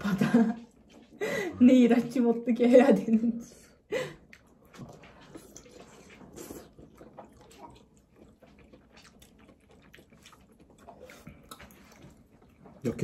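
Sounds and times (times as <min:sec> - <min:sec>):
faint wet chewing: 0:03.7 - 0:13.0.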